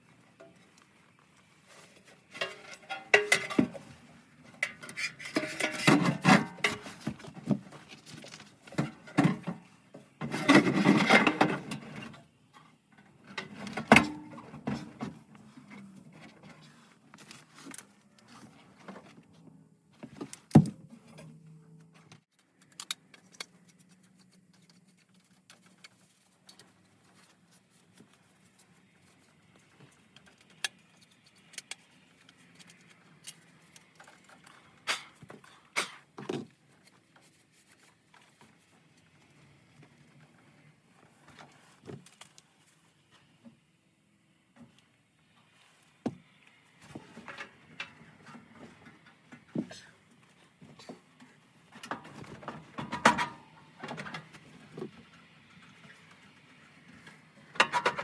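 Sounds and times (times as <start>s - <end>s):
metal clatter: 2.3s - 4.0s, 4.6s - 7.2s.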